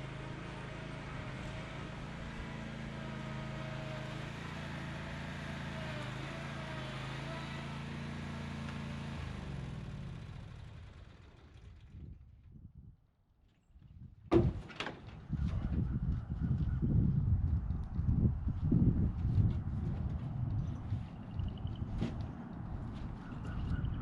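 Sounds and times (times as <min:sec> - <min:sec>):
riding mower engine running: 0:00.0 - 0:12.1, 0:17.8 - 0:24.0.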